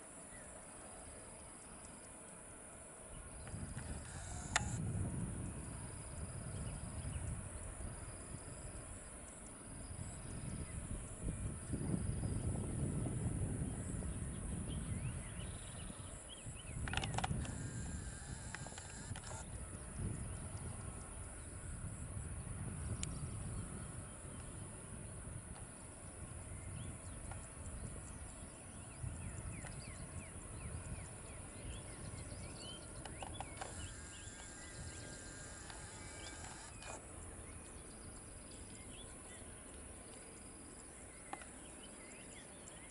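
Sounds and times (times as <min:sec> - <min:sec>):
small birds chirping: 0:26.5 - 0:42.9.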